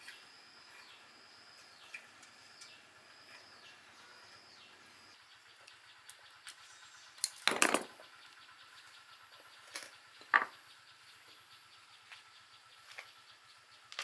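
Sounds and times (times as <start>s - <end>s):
tools and parts clattering: 7.2s - 8.0s, 9.7s - 10.6s.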